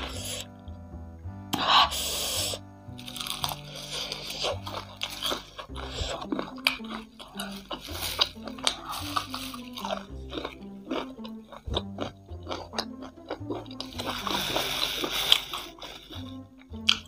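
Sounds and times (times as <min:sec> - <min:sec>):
background music with bass line: 0:00.0 - 0:17.0
crunching and chewing: 0:01.6 - 0:17.0.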